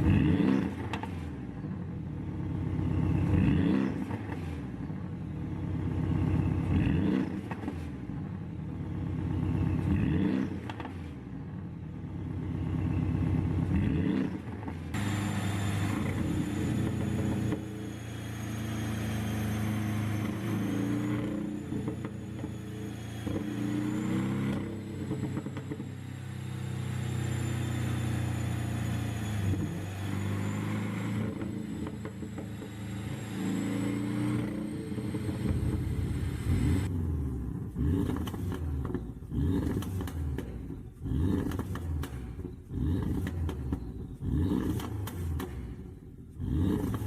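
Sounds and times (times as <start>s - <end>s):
car engine revving: 12.2s - 47.0s
exhaust pops and crackles: 38.0s - 45.8s.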